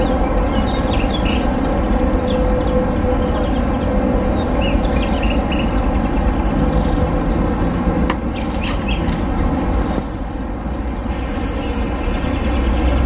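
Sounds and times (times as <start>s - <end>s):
bird chirps: 11.1s - 13.0s.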